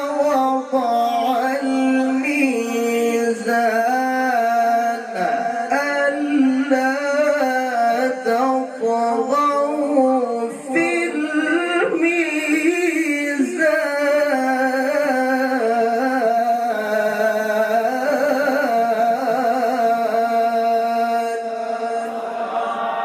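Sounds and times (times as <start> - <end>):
man reciting in melodic chant: 0.0 - 22.3.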